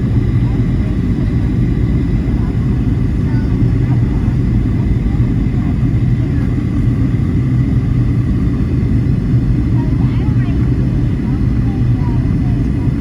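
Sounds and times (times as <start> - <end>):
jet engines and rushing air: 0.0 - 13.0.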